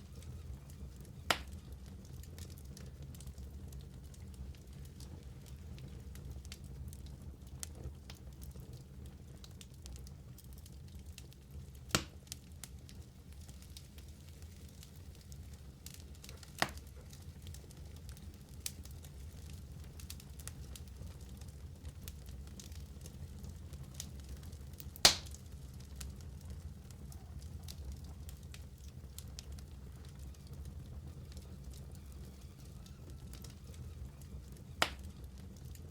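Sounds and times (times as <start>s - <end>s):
low fire rumble: 0.0s - 35.9s
wood fire crackling: 0.0s - 35.9s
loud pop from fire: 1.2s - 1.6s, 11.9s - 12.3s, 16.3s - 17.1s, 25.0s - 25.4s, 34.8s - 35.2s
loud sharp pop: 1.3s - 1.5s, 25.0s - 25.4s.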